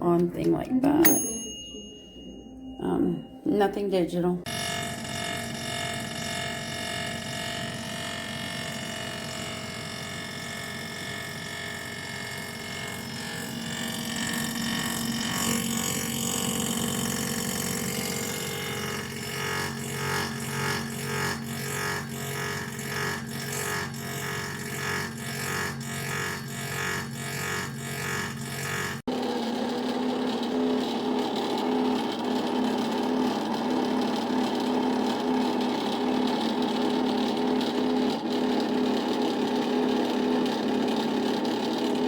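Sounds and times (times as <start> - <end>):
air fryer fan humming: 29.2 - 42.0.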